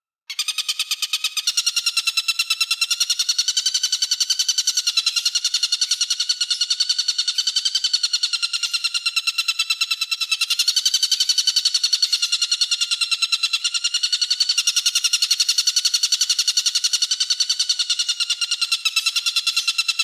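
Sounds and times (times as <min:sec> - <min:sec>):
songbird rapid rattling call: 0:00.3 - 0:20.0.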